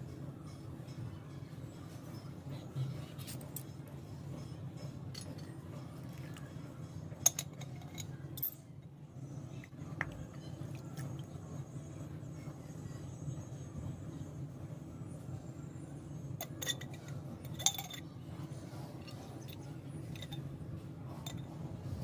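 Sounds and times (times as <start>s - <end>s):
steady low hum: 0.0s - 22.0s
objects clicking and clinking: 5.1s - 5.6s, 7.2s - 8.6s, 16.4s - 18.1s.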